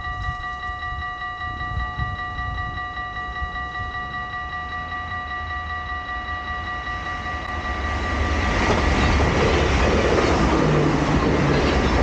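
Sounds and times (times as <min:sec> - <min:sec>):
crossing warning bell: 0:00.0 - 0:12.0
train wheels rumbling on rails: 0:06.7 - 0:12.0.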